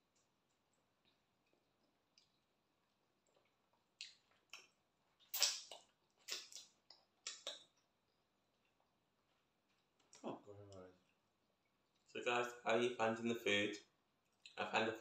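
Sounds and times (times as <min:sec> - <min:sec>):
wet mouth smacks and chewing: 0:00.1 - 0:07.9.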